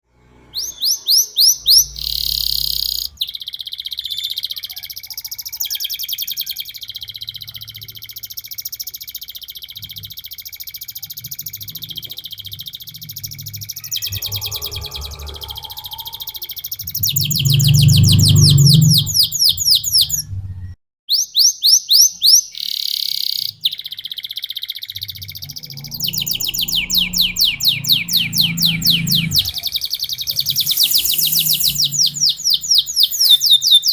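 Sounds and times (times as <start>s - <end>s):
canary singing trills: 0.6s - 33.9s
low rumble: 13.2s - 19.4s, 25.3s - 32.6s.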